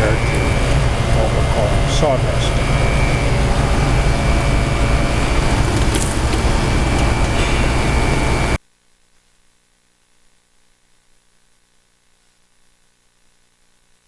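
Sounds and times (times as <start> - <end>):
machinery rumbling with high whine: 0.0 - 8.6.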